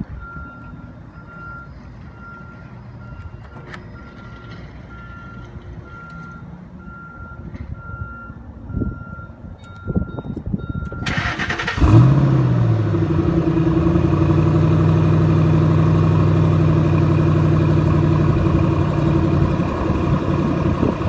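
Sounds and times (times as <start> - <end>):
continuous low rumble: 11.7 - 21.0.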